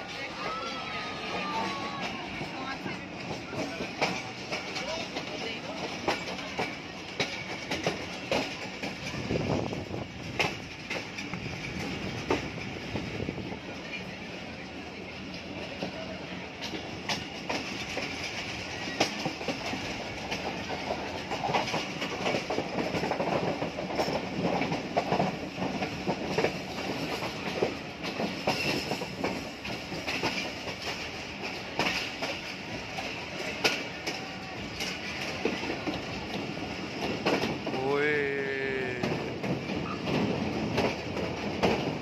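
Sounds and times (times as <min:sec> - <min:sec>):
train wheels rumbling on track: 0:00.0 - 0:42.0
sharp track clacks: 0:01.2 - 0:13.0, 0:16.6 - 0:42.0.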